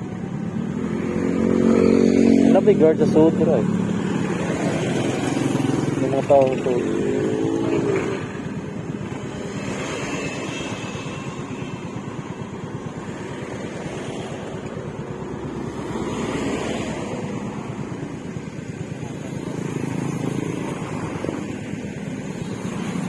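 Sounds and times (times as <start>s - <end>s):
scooter engine running: 0.0s - 23.0s.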